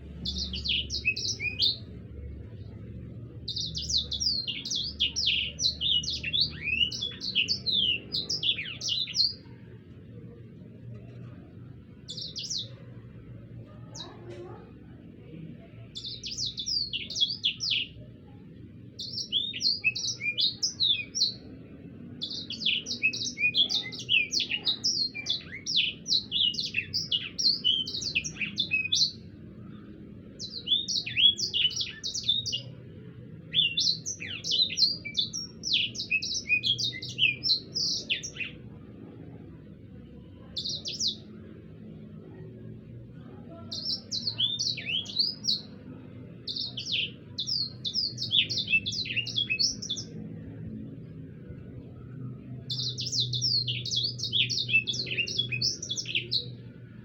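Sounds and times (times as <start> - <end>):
songbird singing rolling song: 0.0 - 14.2, 14.8 - 57.0
low steady hum: 0.0 - 57.0.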